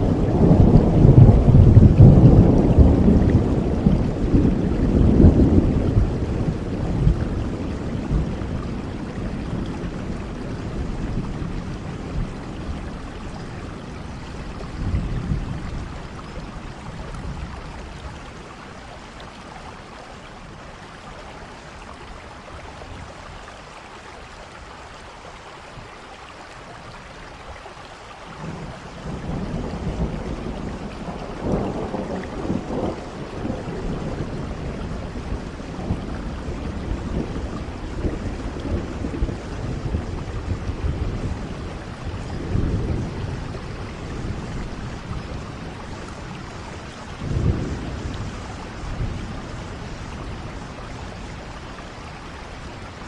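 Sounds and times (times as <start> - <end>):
thunder rumbling: 0.0 - 19.4, 28.4 - 53.0
steady rainfall: 0.0 - 53.0.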